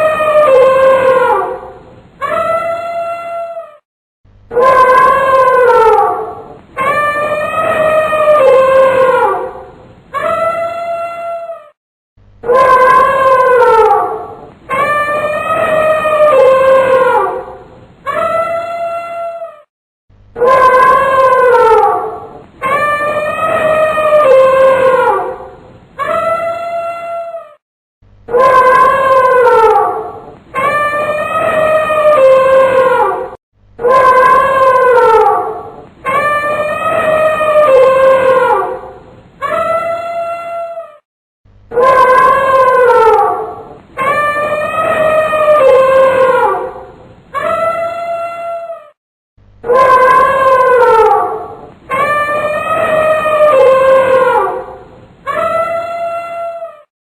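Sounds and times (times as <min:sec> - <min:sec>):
elephant trumpeting: 0:49.7 - 0:56.8.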